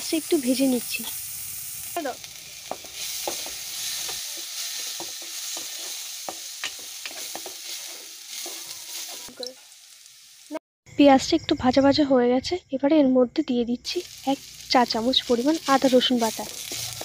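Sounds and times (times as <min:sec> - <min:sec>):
onion sizzling in hot oil: 0:00.0 - 0:10.6, 0:13.8 - 0:17.0
spatula scraping a pan: 0:02.6 - 0:09.3, 0:15.2 - 0:17.0.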